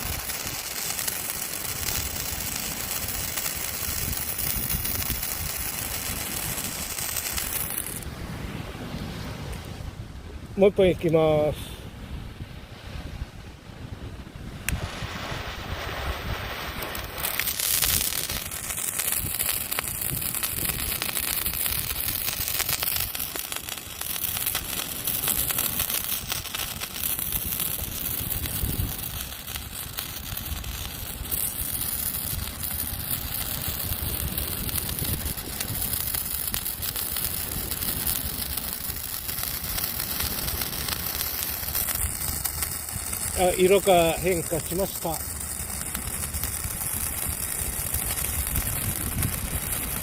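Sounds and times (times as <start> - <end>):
firework stick crackling hiss: 0.0 - 8.1, 14.6 - 50.0.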